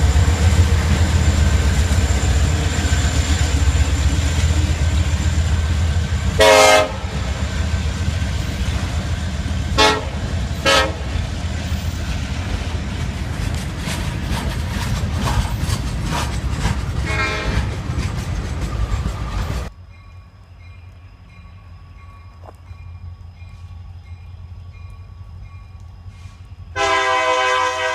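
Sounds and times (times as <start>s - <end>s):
freight train rumbling: 0.0s - 27.9s
locomotive horn blasts: 6.4s - 7.3s, 9.8s - 11.2s, 17.0s - 17.7s, 26.8s - 27.9s.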